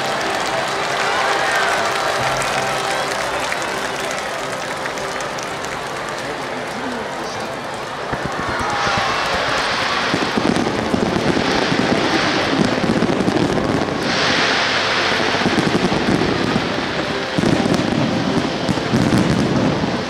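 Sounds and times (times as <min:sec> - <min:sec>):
fireworks popping rapidly: 0:00.0 - 0:20.0
hissing rush: 0:06.5 - 0:20.0.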